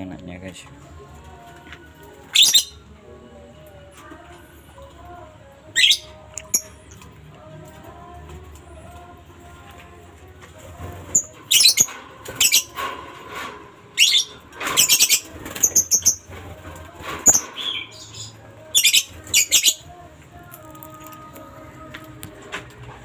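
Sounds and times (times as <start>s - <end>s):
lovebirds chattering calls: 2.3s - 2.8s, 5.8s - 6.8s, 11.1s - 12.8s, 14.0s - 16.3s, 17.3s - 19.8s.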